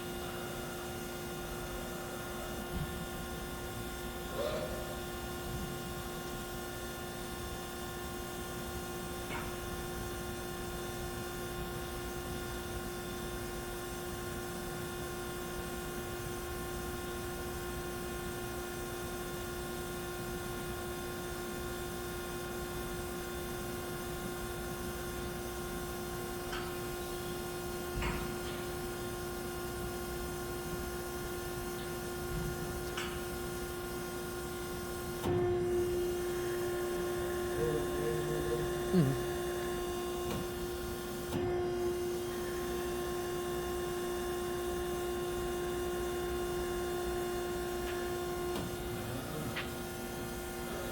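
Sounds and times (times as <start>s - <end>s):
band saw electric hum: 24.5s - 50.9s.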